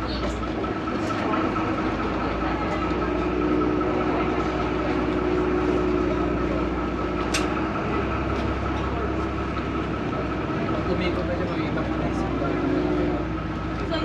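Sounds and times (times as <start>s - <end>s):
boat engine rumbling: 0.0s - 14.0s
sharp click: 7.3s - 7.5s.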